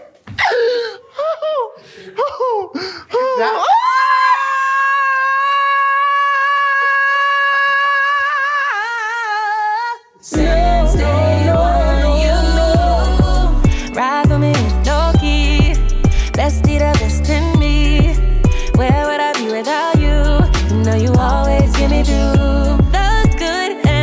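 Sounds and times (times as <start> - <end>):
woman giggling: 0.0 - 3.8.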